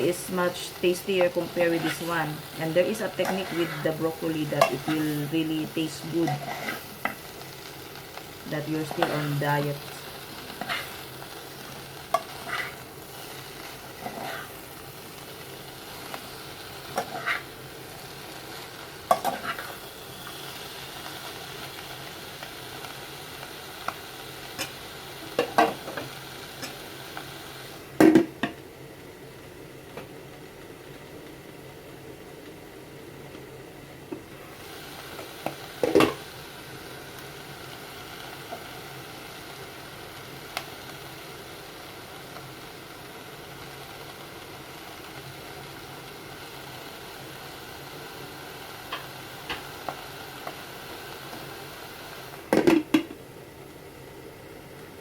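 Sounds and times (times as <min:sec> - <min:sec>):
stir-fry sizzling in a pan: 0:00.0 - 0:55.0
utensil scraping a pan: 0:03.0 - 0:04.0, 0:06.2 - 0:07.2, 0:12.2 - 0:12.8, 0:14.0 - 0:14.6.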